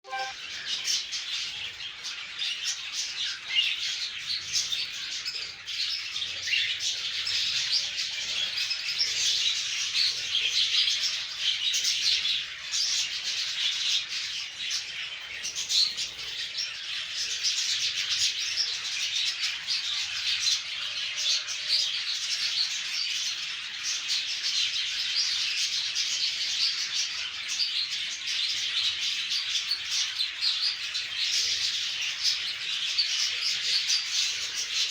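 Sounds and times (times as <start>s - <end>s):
parrots chirping and calling: 0.0s - 0.3s.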